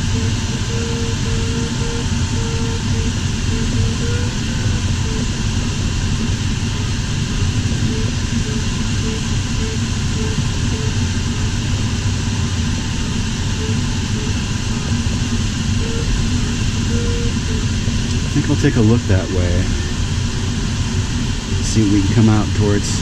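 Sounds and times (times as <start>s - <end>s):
cockpit airflow noise: 0.0s - 23.0s
variometer short beeps: 0.1s - 5.9s, 7.8s - 11.1s, 15.8s - 17.7s.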